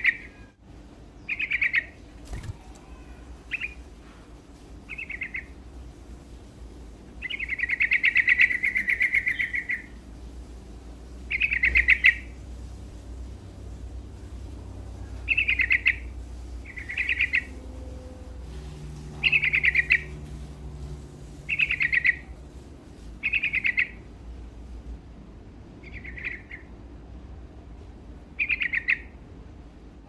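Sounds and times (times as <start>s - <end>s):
bird singing: 0.0s - 0.6s, 1.2s - 3.8s, 7.2s - 10.0s, 11.3s - 12.4s, 15.0s - 18.1s, 19.0s - 20.2s, 21.4s - 22.4s, 23.2s - 24.0s, 25.8s - 26.7s, 28.4s - 29.2s.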